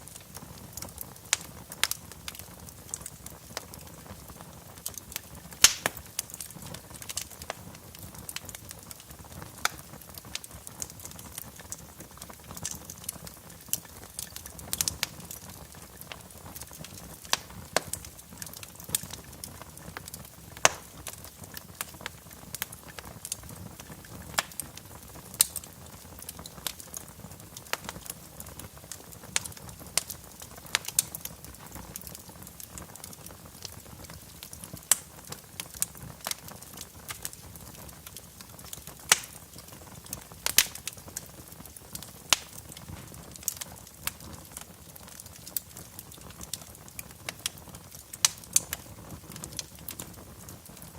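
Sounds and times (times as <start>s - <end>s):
fire hiss: 0.0s - 50.9s
wood fire crackling: 0.0s - 50.9s.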